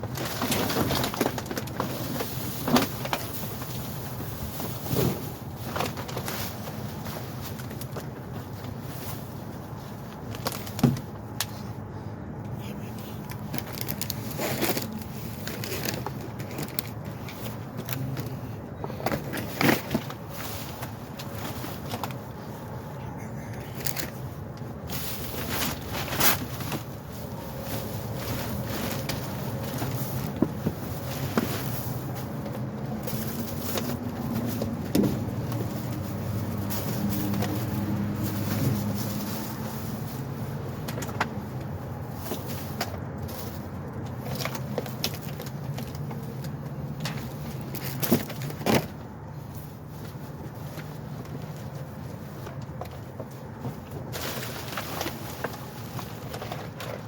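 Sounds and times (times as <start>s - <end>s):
rustling bags and boxes: 0.0s - 57.0s
steady low hum: 11.2s - 40.6s
knocks and clicks of objects moved: 12.4s - 22.3s.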